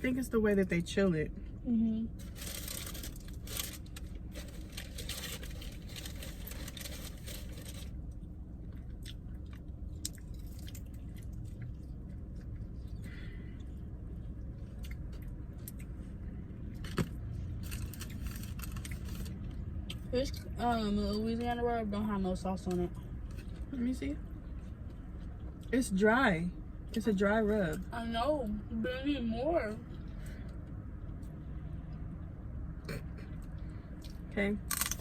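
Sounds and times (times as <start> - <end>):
chewing and crunching food: 2.1 - 20.5, 22.6 - 25.7, 32.8 - 35.0.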